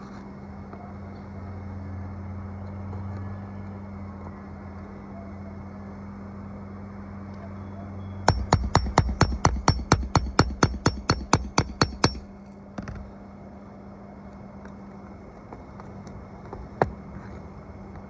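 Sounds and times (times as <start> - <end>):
hammer strikes: 8.3 - 13.0
single knocks: 8.3 - 13.1
steady low hum: 8.3 - 13.3.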